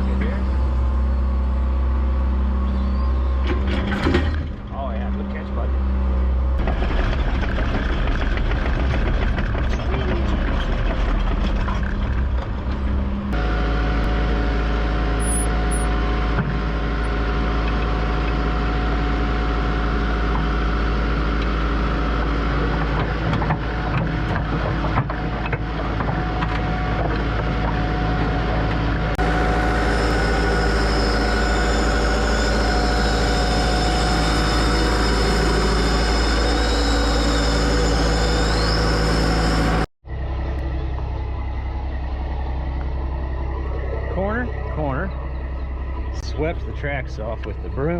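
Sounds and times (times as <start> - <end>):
heavy diesel engine running: 0.0 - 47.9.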